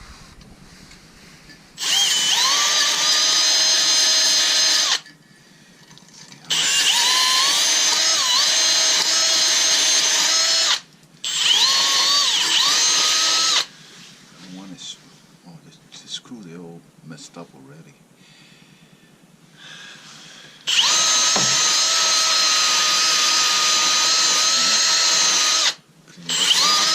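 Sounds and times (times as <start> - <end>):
power drill whining: 1.8 - 5.1, 6.5 - 13.7, 20.6 - 26.9.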